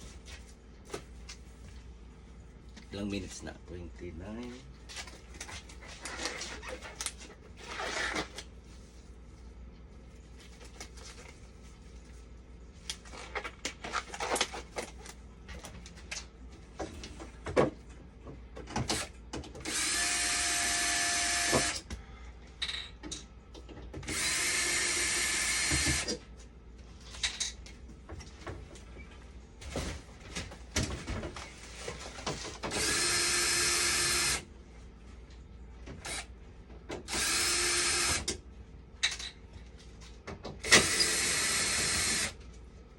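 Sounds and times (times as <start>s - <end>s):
power drill running: 19.0s - 21.8s, 24.1s - 26.2s, 32.7s - 34.4s, 36.0s - 36.3s, 37.1s - 38.3s, 40.6s - 42.4s.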